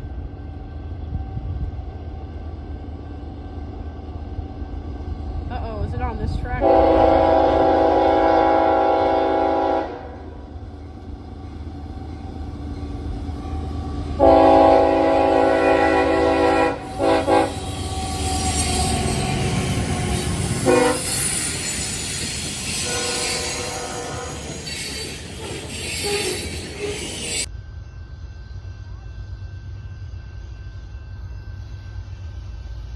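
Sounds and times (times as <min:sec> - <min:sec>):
train rumble and wheels on rails: 0:00.0 - 0:32.9
locomotive horn blasts: 0:06.6 - 0:10.4, 0:14.2 - 0:21.3, 0:22.8 - 0:24.6, 0:25.9 - 0:27.4.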